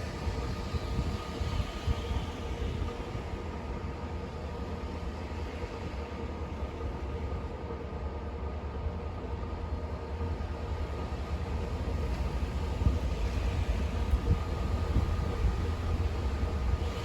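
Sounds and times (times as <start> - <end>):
snowstorm wind blowing: 11.4 - 17.0.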